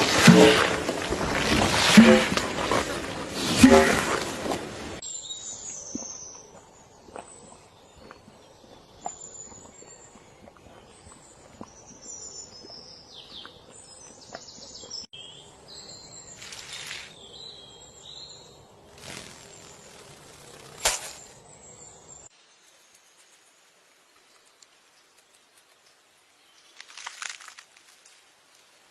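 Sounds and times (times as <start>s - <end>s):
small birds chirping: 5.0s - 27.4s.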